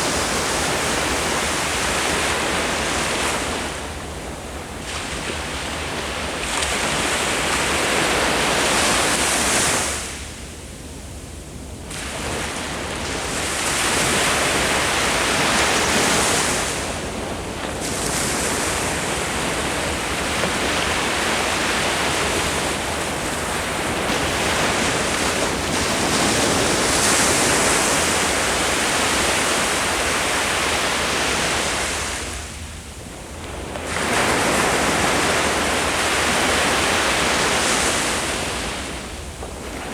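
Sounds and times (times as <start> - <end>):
ocean waves breaking: 11.9 - 39.9.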